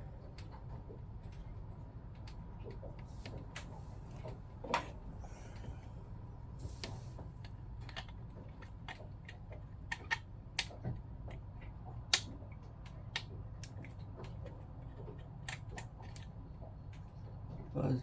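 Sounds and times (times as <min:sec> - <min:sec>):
steady low hum: 0:02.9 - 0:12.1.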